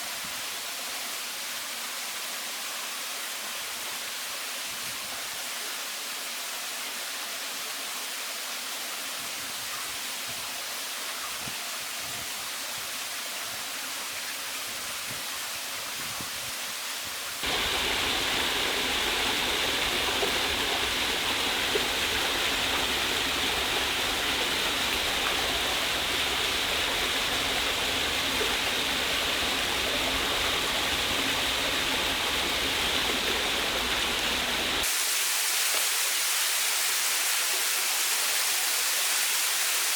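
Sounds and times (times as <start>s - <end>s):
waterfall rushing: 17.4s - 39.9s.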